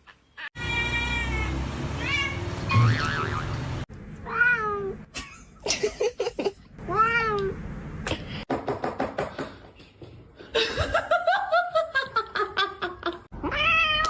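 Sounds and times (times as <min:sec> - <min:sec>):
cat meowing: 0:00.6 - 0:02.4, 0:04.3 - 0:05.0, 0:13.4 - 0:14.0.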